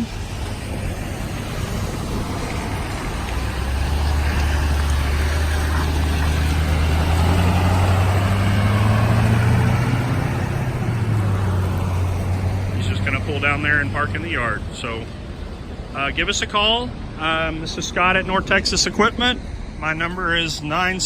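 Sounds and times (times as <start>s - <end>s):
truck engine pulling away: 0.0s - 15.8s.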